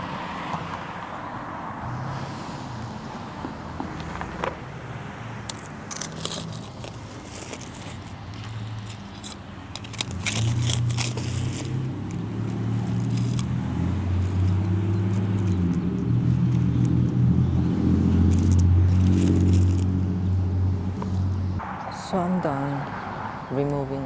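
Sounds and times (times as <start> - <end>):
motor engine humming: 1.8 - 22.7
scratchy scraping and clicking: 5.4 - 20.0.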